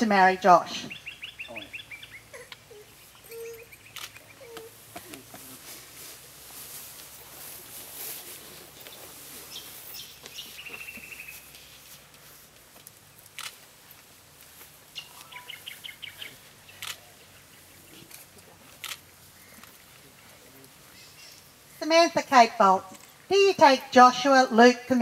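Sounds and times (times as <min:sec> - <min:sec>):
small birds chirping: 0:00.8 - 0:05.3, 0:08.6 - 0:11.8, 0:14.9 - 0:21.8
sharp clicks: 0:03.9 - 0:04.3, 0:12.8 - 0:13.7.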